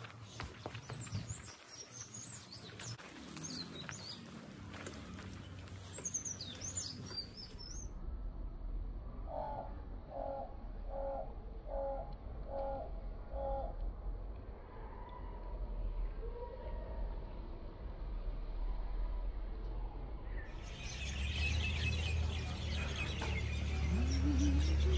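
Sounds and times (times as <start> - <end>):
small birds chirping: 0.0 - 7.9, 20.4 - 24.9
low rumble: 6.8 - 24.9
repeated bird call: 20.6 - 24.9.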